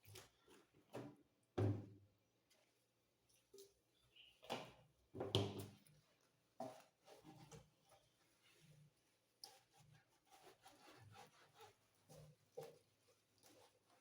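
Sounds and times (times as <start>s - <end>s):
knocks and thuds of kitchen items: 0.9s - 2.0s, 5.1s - 5.7s.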